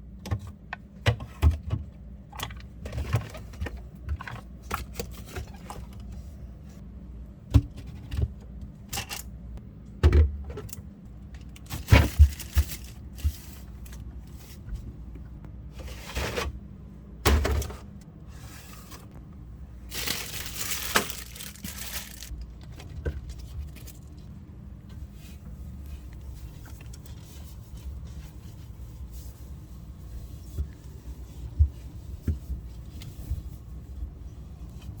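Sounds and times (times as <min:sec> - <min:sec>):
low steady hum: 0:00.0 - 0:35.0
rustling and swishes: 0:19.9 - 0:22.3.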